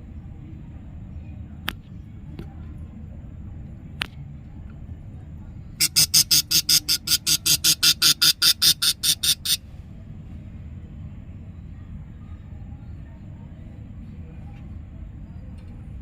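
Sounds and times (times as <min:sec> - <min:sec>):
budgerigar chick chirping: 0:05.8 - 0:09.6.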